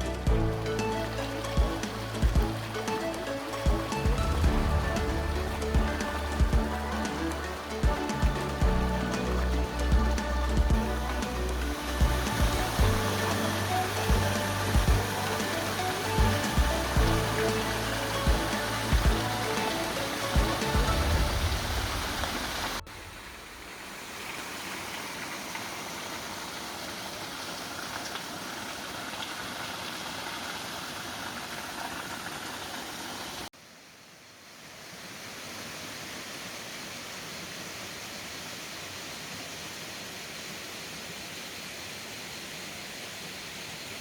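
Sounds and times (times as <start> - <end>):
music: 0.0 - 22.9
river water rushing: 0.0 - 33.5.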